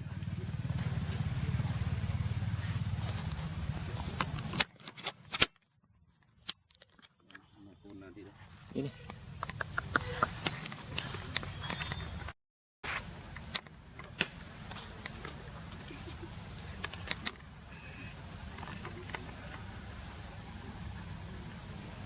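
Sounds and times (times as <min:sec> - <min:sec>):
insects chirring: 0:00.0 - 0:22.0
sharp clicks: 0:04.1 - 0:05.6, 0:09.4 - 0:12.3, 0:16.7 - 0:17.4.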